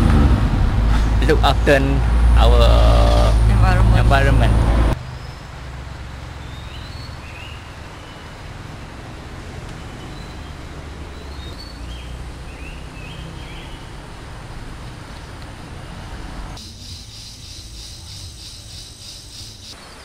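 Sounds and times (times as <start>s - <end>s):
low rumble and hiss: 0.0s - 8.7s.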